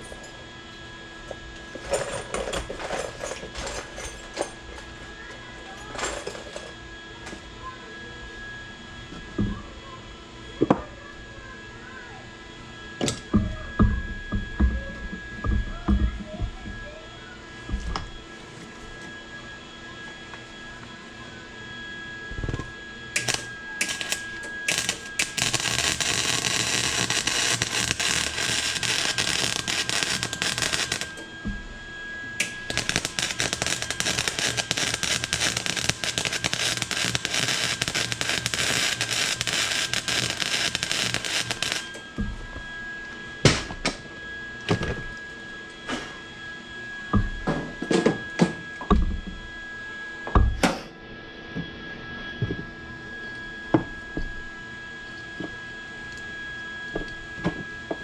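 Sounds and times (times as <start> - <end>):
electric arc welding crackle: 22.4 - 31.6, 32.4 - 42.0.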